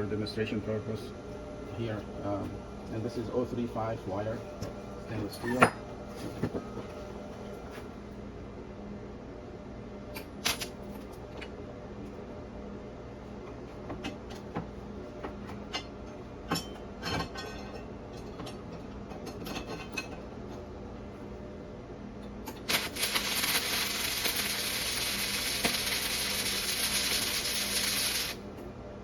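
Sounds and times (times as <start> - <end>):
welding arc crackling: 22.6 - 28.4.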